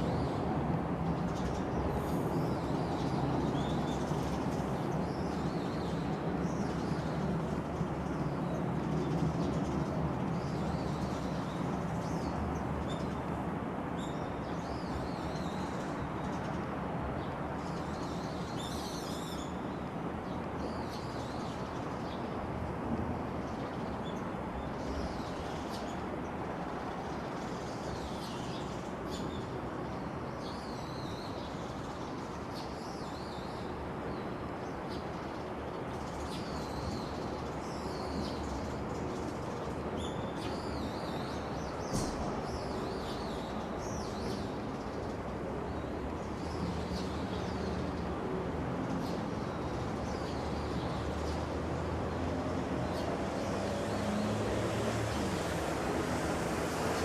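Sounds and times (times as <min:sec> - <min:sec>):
steady background noise: 0:00.0 - 0:57.0.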